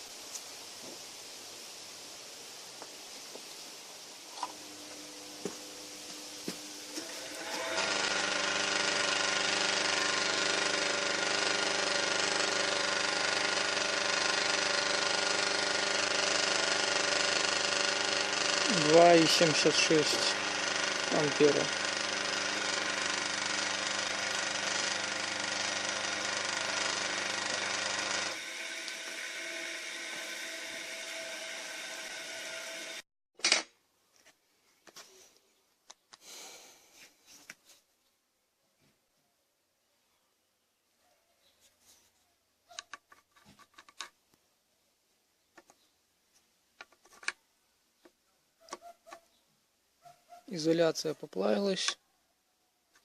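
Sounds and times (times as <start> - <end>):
electric motor hum: 4.3 - 33.0
motor whirr: 4.4 - 33.0.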